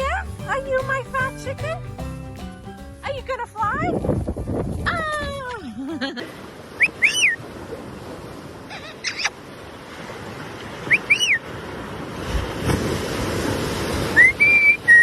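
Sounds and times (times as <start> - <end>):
parrot whistling: 6.8 - 7.4.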